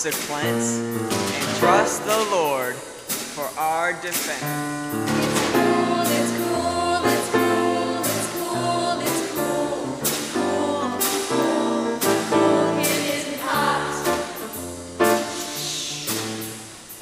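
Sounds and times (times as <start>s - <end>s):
choir singing upbeat song: 0.0s - 4.4s, 5.0s - 16.6s
steady drum beat: 0.0s - 17.0s.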